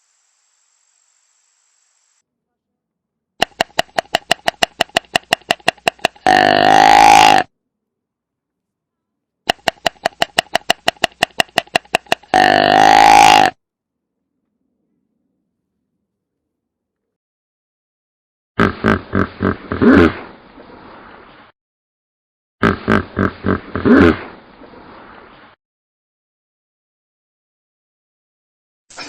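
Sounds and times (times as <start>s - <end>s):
animal call with pulses: 6.2s - 7.5s, 12.0s - 13.6s.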